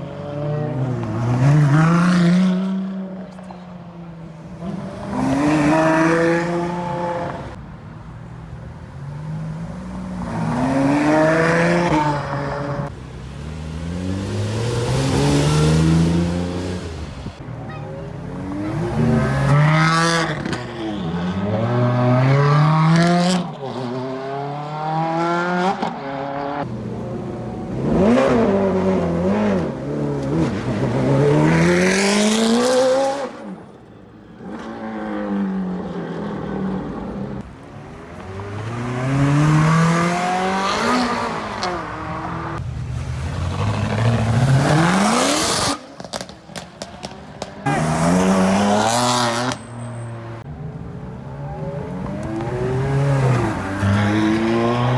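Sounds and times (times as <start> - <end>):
sports cars accelerating: 18.3 - 33.7, 34.4 - 54.9.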